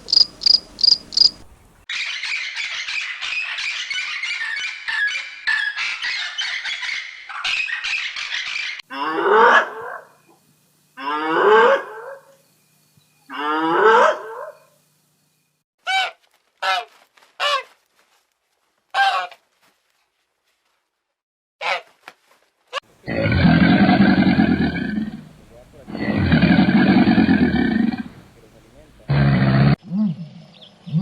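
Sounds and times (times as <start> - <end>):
birds chattering: 0.0 - 1.8, 23.0 - 29.2
long pitched animal calls: 23.0 - 29.8
short animal calls: 23.0 - 29.8.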